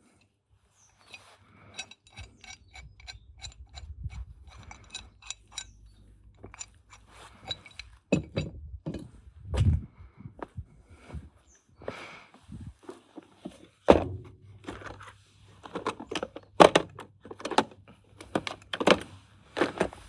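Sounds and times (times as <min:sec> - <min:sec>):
metal tools clinking: 0:00.8 - 0:09.2.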